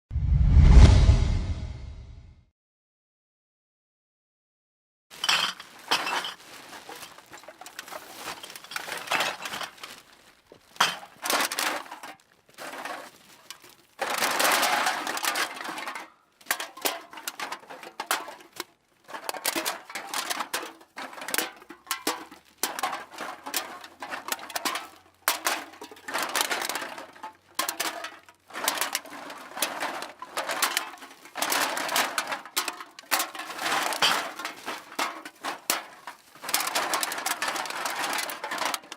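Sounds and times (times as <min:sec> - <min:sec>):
metal cans clinking together: 0:05.1 - 0:10.1, 0:10.8 - 0:38.9
bag rustling: 0:05.2 - 0:10.4.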